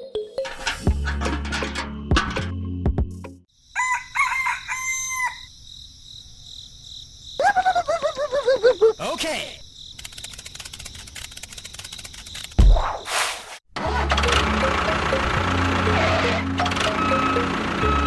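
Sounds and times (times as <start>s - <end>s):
music: 0.0s - 3.5s, 13.8s - 18.0s
rooster crowing: 3.7s - 5.6s
rapid clicking: 10.0s - 12.6s.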